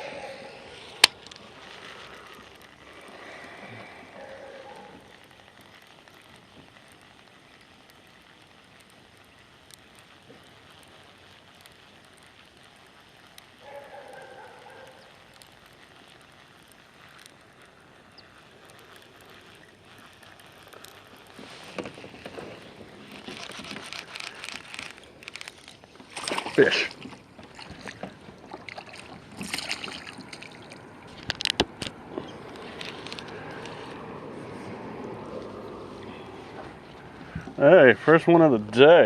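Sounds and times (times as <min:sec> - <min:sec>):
faint open-water noise: 0:00.0 - 0:39.0
rapid clicking and rattling: 0:05.0 - 0:34.3.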